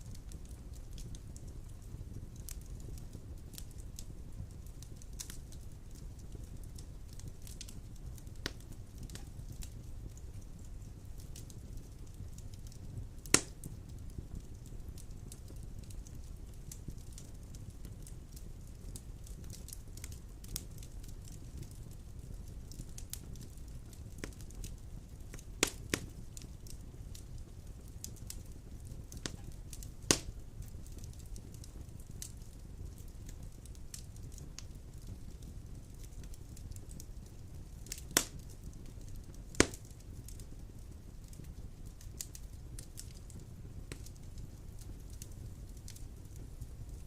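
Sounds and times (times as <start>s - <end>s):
logs burning with crackles: 0.0s - 47.0s
wood fire rumbling: 0.0s - 47.0s
loud sharp pop of fire: 13.2s - 13.8s, 25.3s - 26.8s, 29.2s - 31.0s, 37.8s - 38.5s, 39.1s - 40.0s
loud fire pop: 30.1s - 30.3s, 39.6s - 39.8s.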